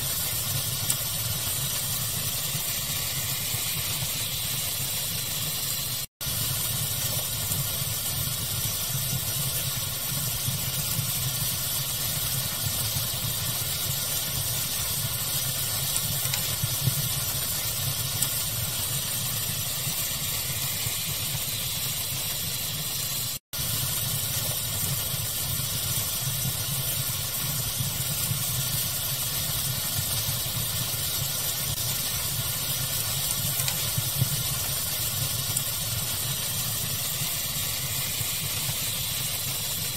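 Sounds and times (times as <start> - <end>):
fire crackling with pops: 0.0 - 22.8, 23.6 - 39.9
steady hiss and rumble: 0.0 - 39.9.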